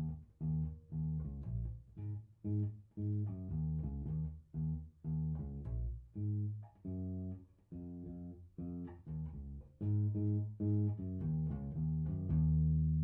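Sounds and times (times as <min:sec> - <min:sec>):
electric bass guitar notes: 0:00.0 - 0:13.0.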